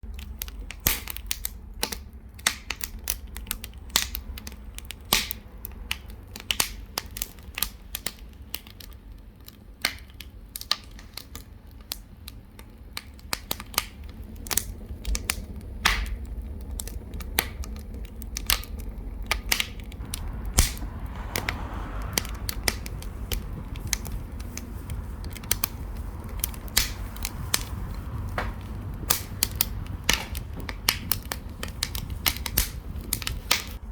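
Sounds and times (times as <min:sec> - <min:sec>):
wood fire crackling: 0:00.0 - 0:33.9
steady low rumble: 0:19.9 - 0:33.9.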